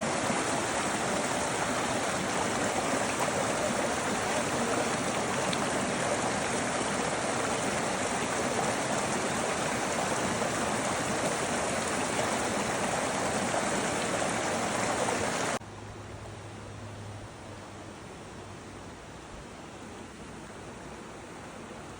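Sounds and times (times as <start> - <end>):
stream water rushing: 0.0 - 15.6.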